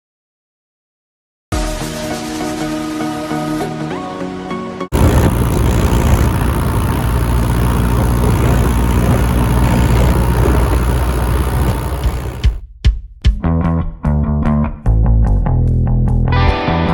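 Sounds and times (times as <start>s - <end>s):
tractor diesel engine running: 4.9s - 12.6s.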